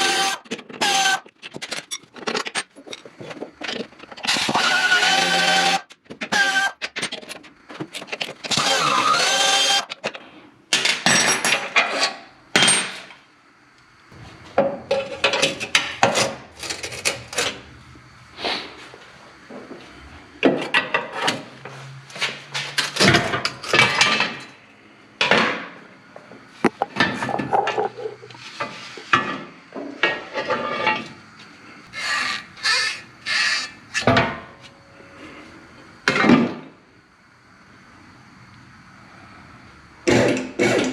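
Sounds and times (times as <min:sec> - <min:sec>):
hand tools and metal parts clanking: 0:00.1 - 0:04.8, 0:06.0 - 0:08.8, 0:26.6 - 0:31.1.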